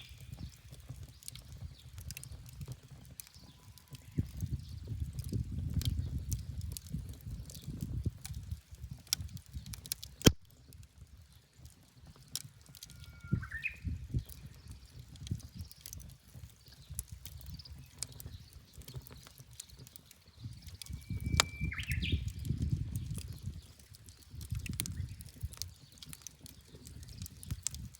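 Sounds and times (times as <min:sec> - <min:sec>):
low rumble of flames: 0:00.0 - 0:27.9
wood fire crackling and popping: 0:00.0 - 0:27.9
bird singing whistled note: 0:12.9 - 0:14.0, 0:20.8 - 0:22.4.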